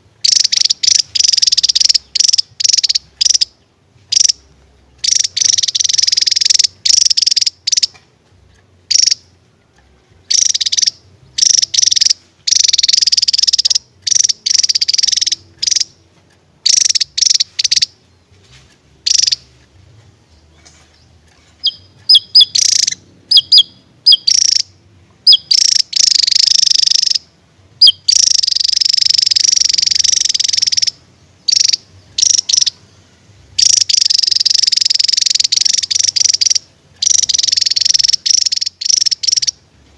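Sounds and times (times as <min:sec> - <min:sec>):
sharp bird notes: 0:00.0 - 0:08.0, 0:08.9 - 0:09.4, 0:10.2 - 0:16.0, 0:20.3 - 0:33.0
bird buzzy chattering song: 0:00.0 - 0:39.7.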